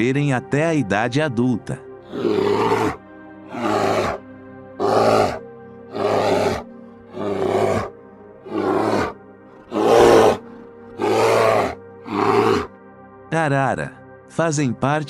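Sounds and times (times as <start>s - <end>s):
background music: 0.0s - 15.0s
bear roaring: 2.1s - 4.2s, 4.8s - 12.7s.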